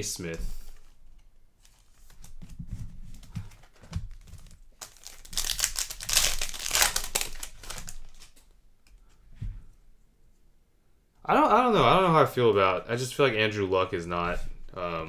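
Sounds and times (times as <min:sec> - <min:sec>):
wrapper crinkling and tearing: 0:03.6 - 0:08.5.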